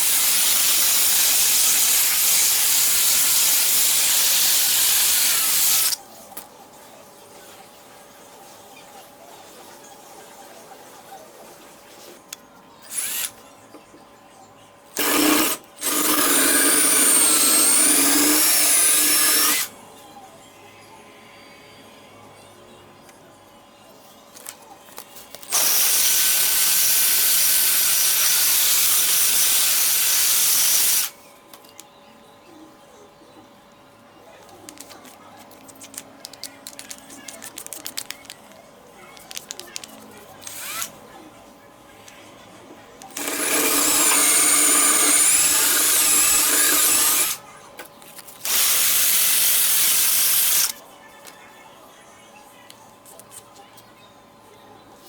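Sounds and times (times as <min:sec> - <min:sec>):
electric power tool whining: 0:00.0 - 0:06.0, 0:12.8 - 0:13.3, 0:15.0 - 0:19.7, 0:25.5 - 0:31.1, 0:43.1 - 0:47.4, 0:48.4 - 0:50.7.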